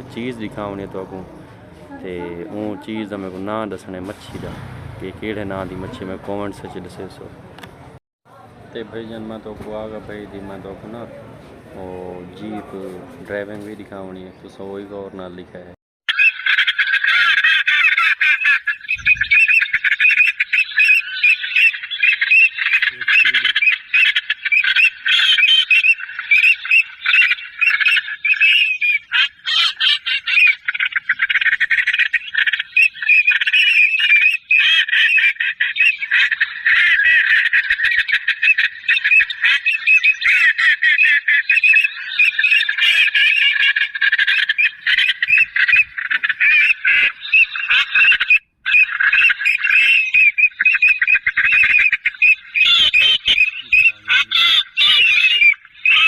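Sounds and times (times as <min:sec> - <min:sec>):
waterfowl honking and squawking: 0:16.1 - 0:56.0.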